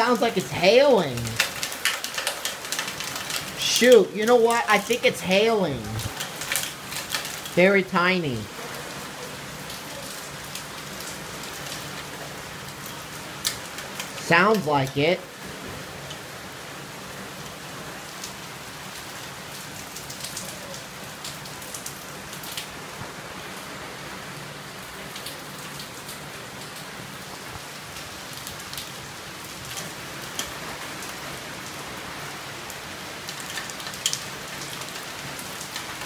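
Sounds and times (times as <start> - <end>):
tiny hail ticking: 0.0 - 8.5
heavy rain falling: 0.0 - 36.0.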